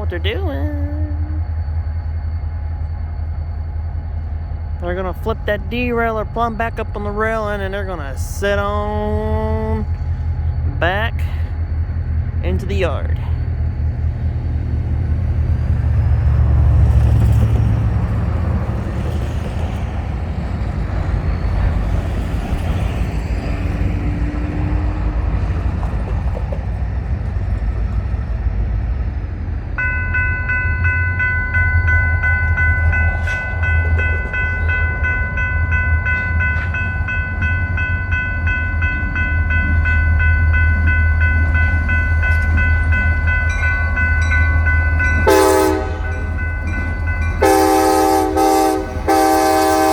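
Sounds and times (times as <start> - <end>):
locomotive engine rumble: 0.0 - 49.9
locomotive air horn chord: 45.2 - 46.2, 47.4 - 49.9.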